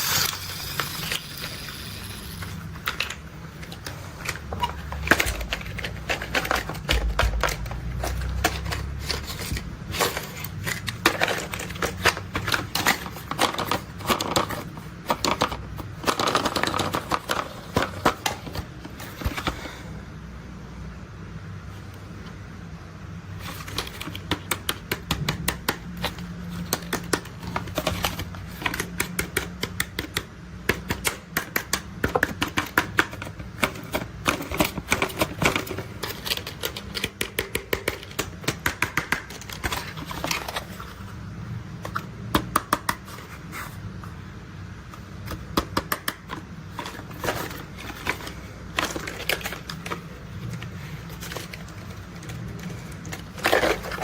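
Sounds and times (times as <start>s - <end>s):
steady low hum: 0.0s - 16.0s
plastic toy clicks and clatter: 0.0s - 19.4s, 23.4s - 40.8s.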